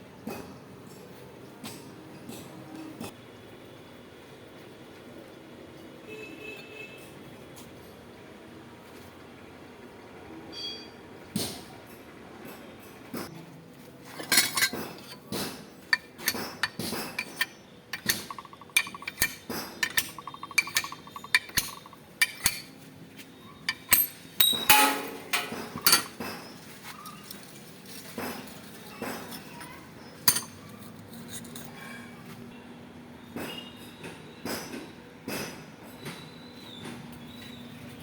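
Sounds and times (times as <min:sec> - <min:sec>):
metal tools clinking and knocking: 0:14.2 - 0:22.9, 0:23.6 - 0:27.7, 0:30.2 - 0:32.0.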